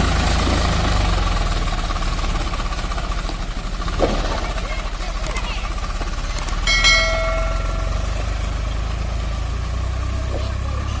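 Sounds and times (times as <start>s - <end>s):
tractor diesel engine throbbing: 0.0s - 11.0s
short metallic ring: 6.6s - 8.6s.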